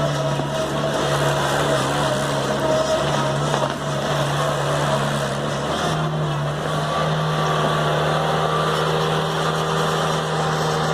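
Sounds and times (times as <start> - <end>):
truck engine running under load: 0.0 - 10.9.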